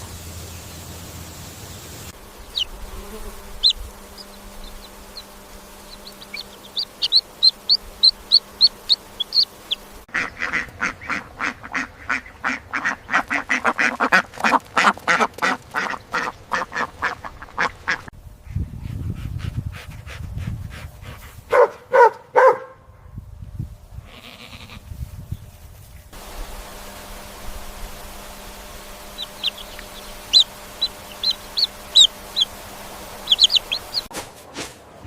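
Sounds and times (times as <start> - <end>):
birds peeping: 0.0 - 18.1, 26.3 - 34.1
ducks quacking: 3.6 - 18.1, 29.1 - 34.1.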